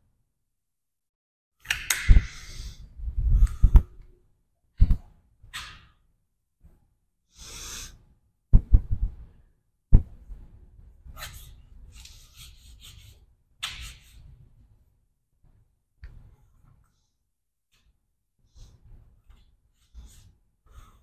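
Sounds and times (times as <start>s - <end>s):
person breathing hard: 2.2s - 4.0s, 7.3s - 8.0s, 20.6s - 21.0s.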